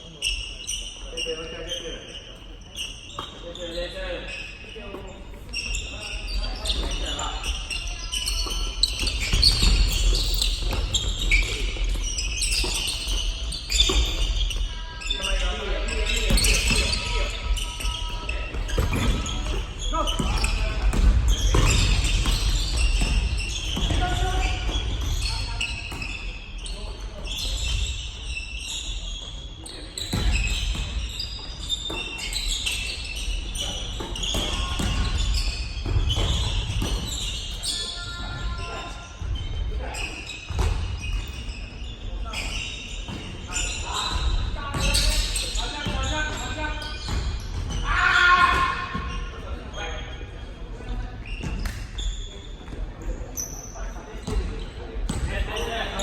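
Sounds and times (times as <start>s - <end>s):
shoes squeaking on court: 0.0s - 56.0s
basketball bouncing: 18.5s - 25.2s.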